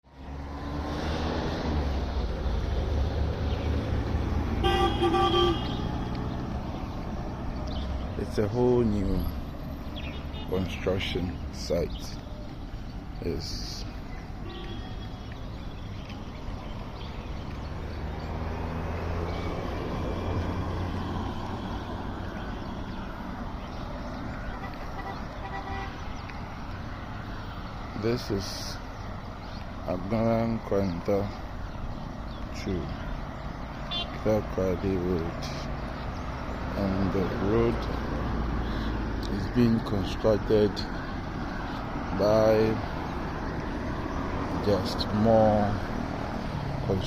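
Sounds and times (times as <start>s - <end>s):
road traffic: 0.0s - 47.0s
vehicle engine rumble: 0.0s - 47.0s
vehicle horn toots: 4.6s - 6.0s, 14.4s - 15.2s, 24.5s - 26.0s, 33.9s - 34.2s.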